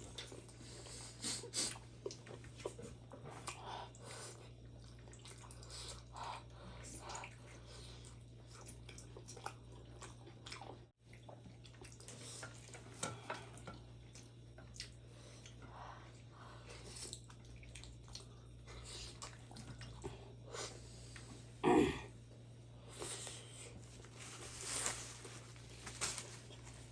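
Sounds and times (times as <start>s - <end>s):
person chewing food: 1.5s - 15.6s, 16.6s - 20.4s.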